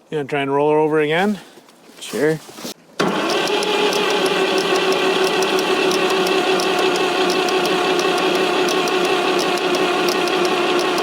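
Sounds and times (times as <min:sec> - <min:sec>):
engine starter motor cranking: 0:03.0 - 0:11.0.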